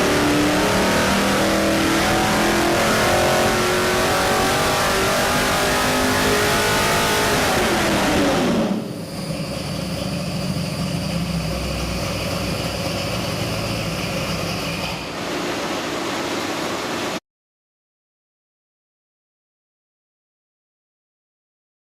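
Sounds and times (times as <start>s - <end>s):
engine running at high revs: 0.0s - 17.2s.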